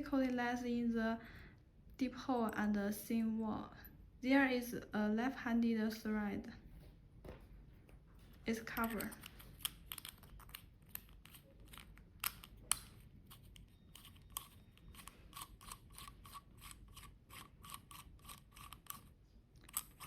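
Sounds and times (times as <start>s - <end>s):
metal part clicks and scrapes: 8.8s - 20.0s.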